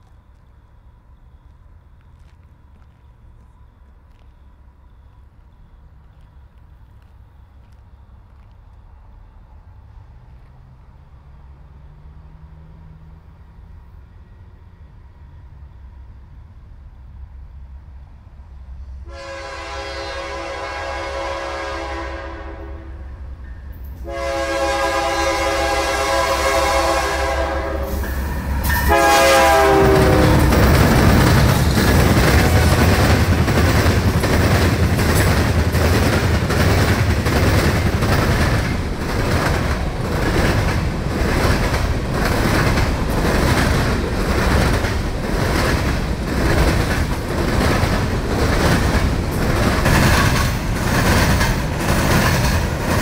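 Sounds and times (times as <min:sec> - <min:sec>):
locomotive horn blasts: 0:19.0 - 0:23.1, 0:24.0 - 0:30.6, 0:32.4 - 0:33.0
train wheels clattering on rails: 0:23.5 - 0:53.0.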